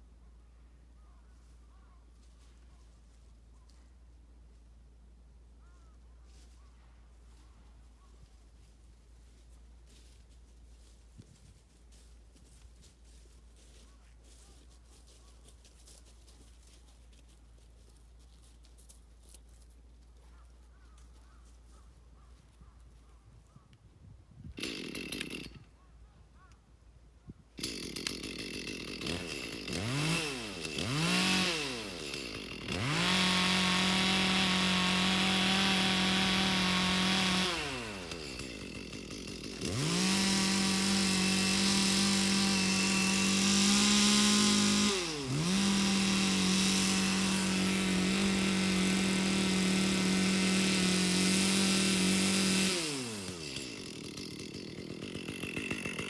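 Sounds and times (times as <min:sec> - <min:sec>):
chainsaw revving and cutting: 0:24.6 - 0:25.7, 0:27.6 - 0:56.0.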